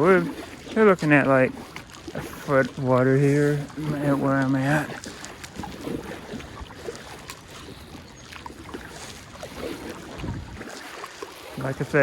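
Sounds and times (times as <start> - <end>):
water around kayak hull: 0.0 - 12.0.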